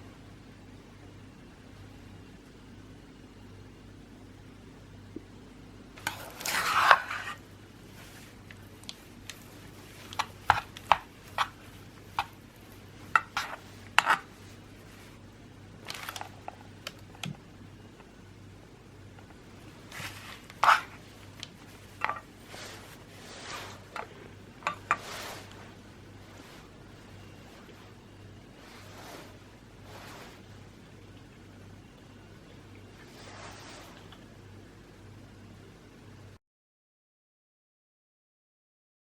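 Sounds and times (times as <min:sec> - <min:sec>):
rustling scrape: 0:06.0 - 0:15.2, 0:15.8 - 0:16.6, 0:19.6 - 0:30.7, 0:33.0 - 0:34.1.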